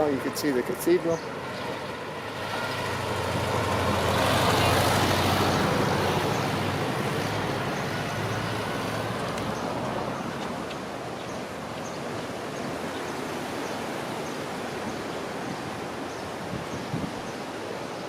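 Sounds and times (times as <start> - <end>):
outdoor background rush: 0.0 - 18.0
vehicle passing: 1.2 - 11.0.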